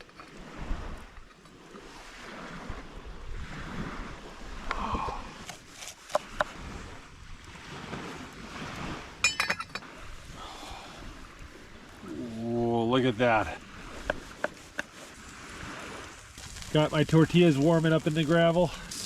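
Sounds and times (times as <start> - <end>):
wind rushing in gusts: 0.1 - 5.5, 6.2 - 17.8.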